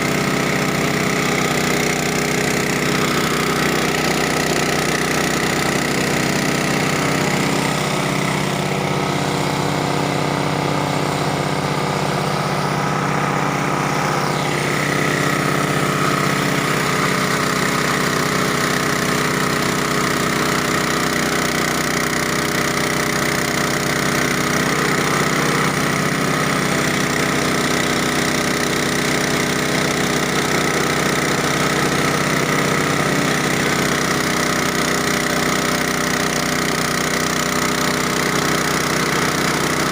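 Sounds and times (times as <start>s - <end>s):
chopping machine engine hum: 0.0s - 39.9s.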